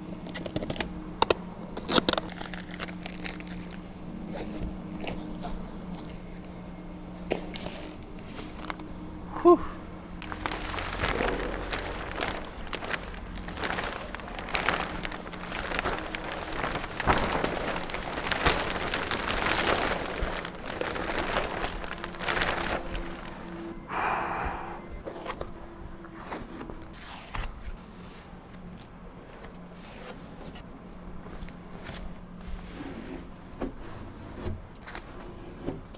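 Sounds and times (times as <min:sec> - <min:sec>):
steady low hum: 0:00.0 - 0:26.8
plastic wrap rustling and tearing: 0:01.8 - 0:05.3, 0:10.2 - 0:23.7.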